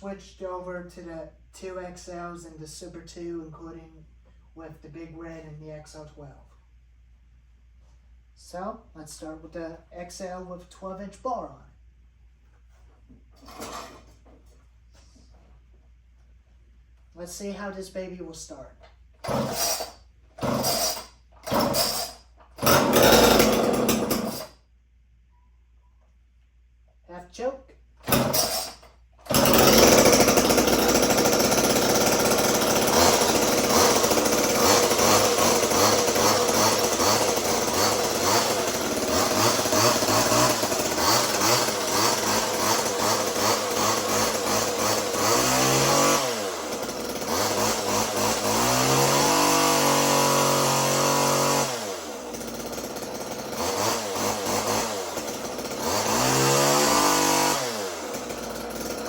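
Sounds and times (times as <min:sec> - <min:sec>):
chainsaw engine revving: 0:13.4 - 0:14.0, 0:19.2 - 0:24.5, 0:28.0 - 0:59.0.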